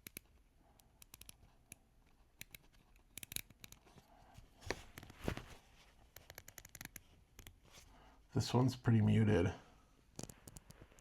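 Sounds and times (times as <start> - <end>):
watch bezel clicking: 1.0 - 1.8, 2.4 - 3.8.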